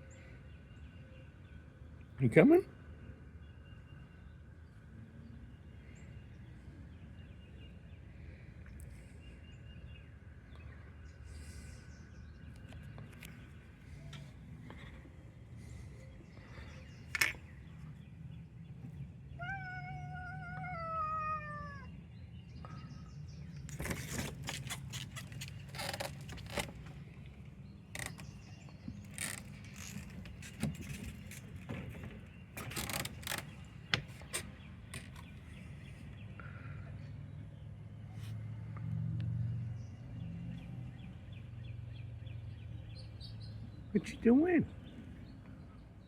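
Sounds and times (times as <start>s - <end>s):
cat meowing: 19.4s - 21.9s
short clicks and rustles: 23.7s - 35.6s.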